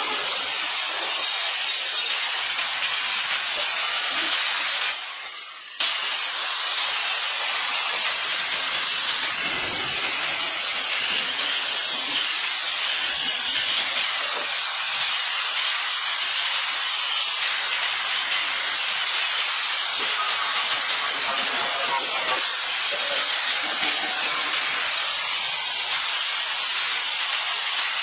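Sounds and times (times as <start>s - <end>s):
loud pressurized hiss: 0.0s - 28.0s.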